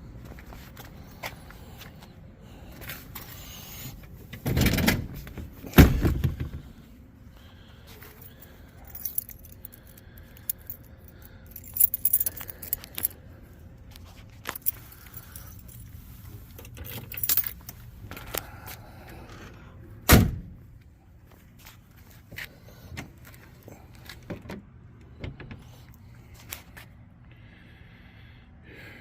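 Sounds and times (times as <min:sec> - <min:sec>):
metallic jingling: 0:08.2 - 0:13.2, 0:16.9 - 0:17.6.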